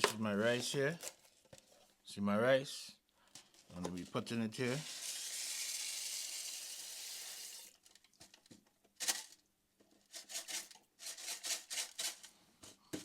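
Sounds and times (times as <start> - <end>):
dry rice pouring: 4.6 - 7.8
box rattling with grains: 10.1 - 12.3.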